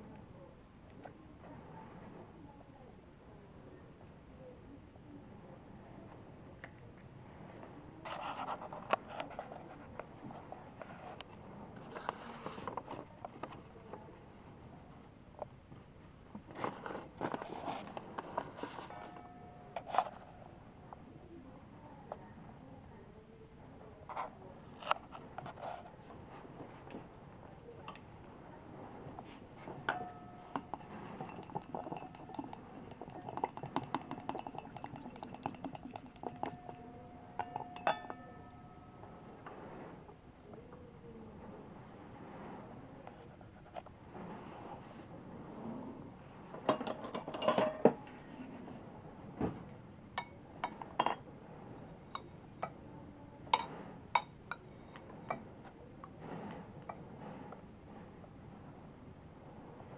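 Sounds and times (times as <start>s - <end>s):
utensil clinking against bowl: 29.9s - 39.0s, 46.7s - 48.0s.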